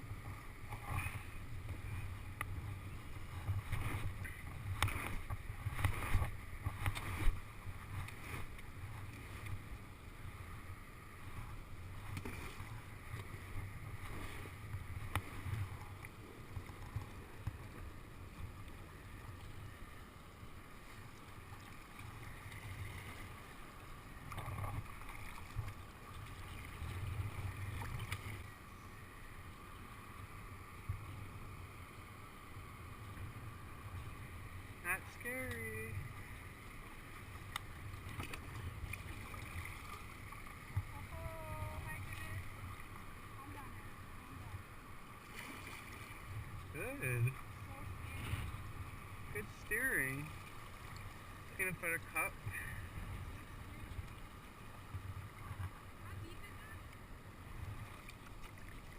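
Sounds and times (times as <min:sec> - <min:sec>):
river water rushing: 0:31.4 - 0:58.9.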